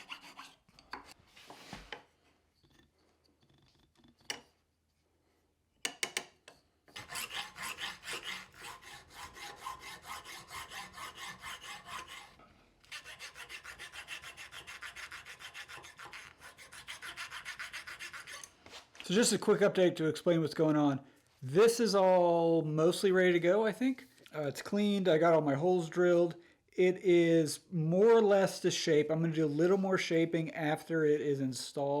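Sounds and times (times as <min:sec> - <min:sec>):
hand filing strokes: 0:00.0 - 0:02.0, 0:06.9 - 0:18.8.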